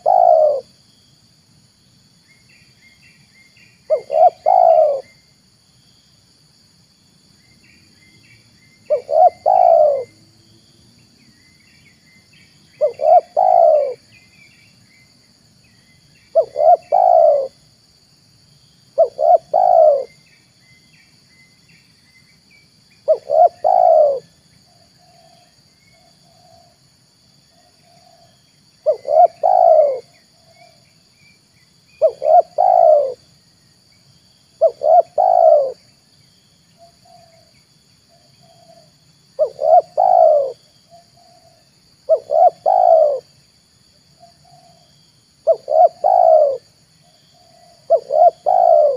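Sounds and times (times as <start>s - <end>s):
dove cooing: 0.0s - 0.8s, 3.9s - 5.2s, 8.9s - 10.2s, 12.8s - 14.1s, 16.3s - 17.6s, 19.0s - 20.2s, 23.0s - 25.5s, 27.6s - 30.8s, 32.0s - 33.2s, 34.6s - 35.8s, 36.8s - 37.5s, 38.1s - 43.4s, 44.2s - 46.7s, 47.3s - 48.9s
small birds chirping: 0.0s - 1.2s, 2.2s - 5.3s, 7.4s - 17.6s, 18.6s - 26.8s, 27.5s - 43.3s, 44.2s - 48.9s
high insect buzz: 0.0s - 48.9s.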